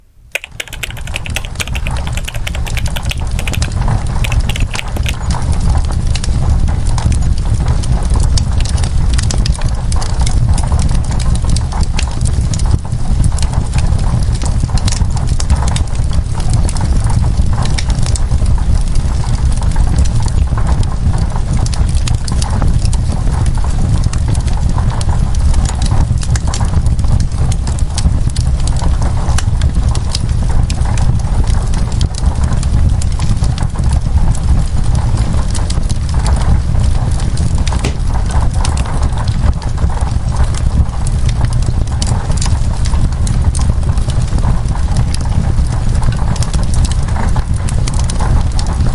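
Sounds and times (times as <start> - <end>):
wood fire crackling and popping: 0.3 - 48.9
low fire rumble: 5.2 - 48.9.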